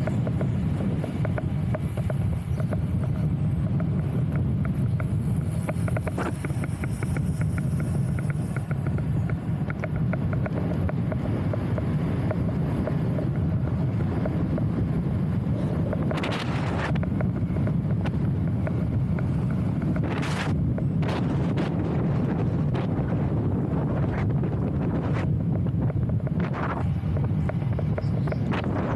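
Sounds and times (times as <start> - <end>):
wind buffeting microphone: 0.0 - 28.9
light ticks: 0.1 - 20.9.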